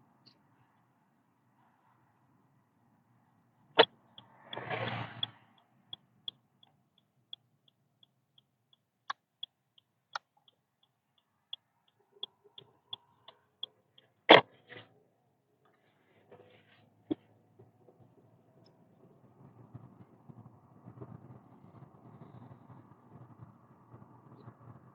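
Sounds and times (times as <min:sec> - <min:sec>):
turn signal ticking: 0:03.8 - 0:14.7.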